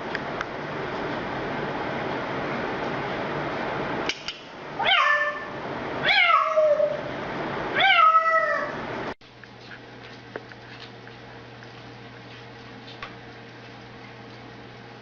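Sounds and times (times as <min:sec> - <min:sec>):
cat meowing: 0:04.8 - 0:07.0, 0:07.8 - 0:08.8.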